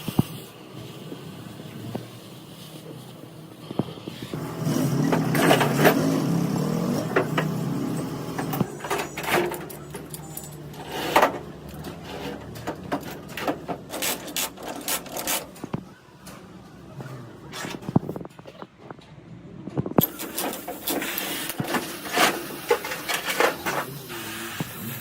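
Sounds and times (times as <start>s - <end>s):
engine running: 3.8s - 15.8s
metal tools clinking: 4.9s - 15.6s, 20.0s - 24.0s.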